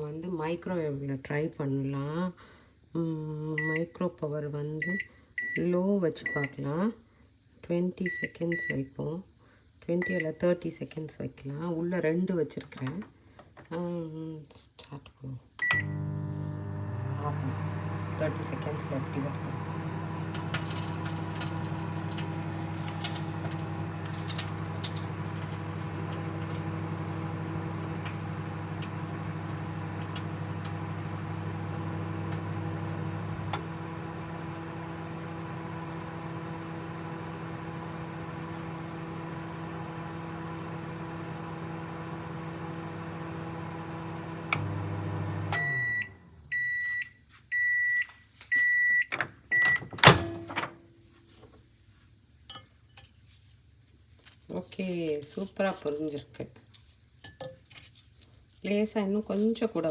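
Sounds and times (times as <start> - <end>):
microwave beeps: 3.6 - 4.0, 4.8 - 6.6, 8.0 - 8.8, 10.0 - 10.4, 15.6 - 35.4, 44.2 - 50.5
microwave oven humming: 15.6 - 46.9.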